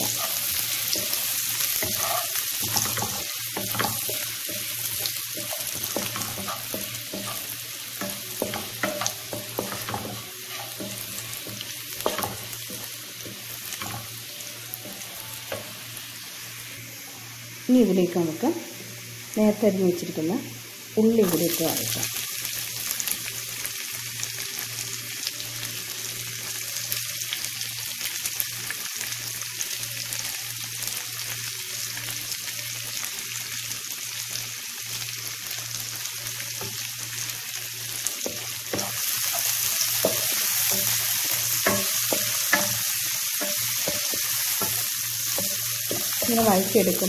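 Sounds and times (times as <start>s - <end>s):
spatula scraping pan: 0.0s - 14.1s
onion sizzling in hot oil: 0.0s - 47.0s.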